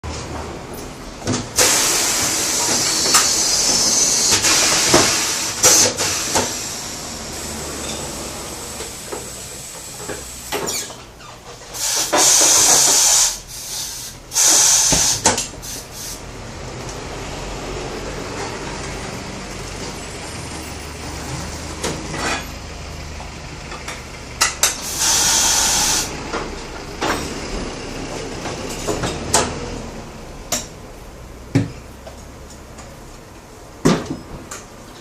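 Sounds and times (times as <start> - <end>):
compressed air hissing: 1.6 - 10.9, 11.7 - 16.2, 24.7 - 26.2.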